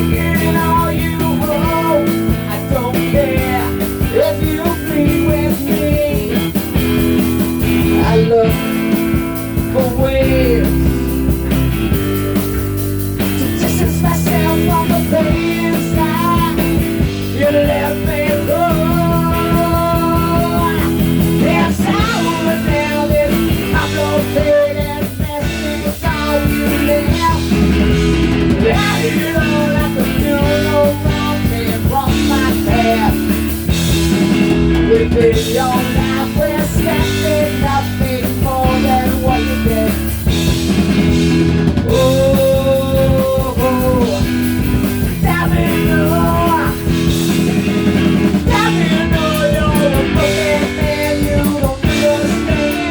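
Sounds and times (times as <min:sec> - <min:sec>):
drums: 0:00.0 - 0:52.9
electric guitar: 0:00.0 - 0:52.9.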